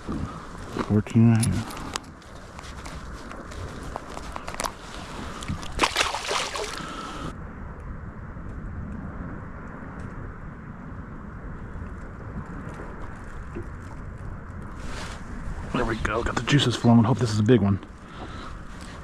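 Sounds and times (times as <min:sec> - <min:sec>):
wind and water rushing: 0:04.7 - 0:07.3.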